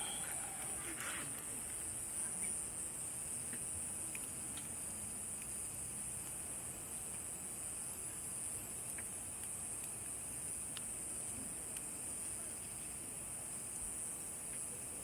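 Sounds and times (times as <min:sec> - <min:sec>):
night insects droning: 0:00.0 - 0:15.0
faint campfire pops: 0:03.4 - 0:07.3, 0:08.7 - 0:13.0.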